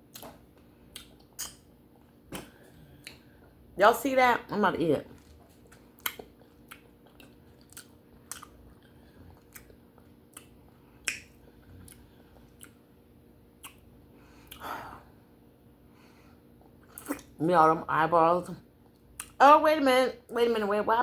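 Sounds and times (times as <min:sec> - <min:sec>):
faint steady hum: 0:00.0 - 0:21.0
chewing with wet mouth clicks: 0:00.1 - 0:01.7, 0:05.2 - 0:12.8, 0:13.6 - 0:14.7, 0:16.6 - 0:17.4, 0:18.8 - 0:19.4.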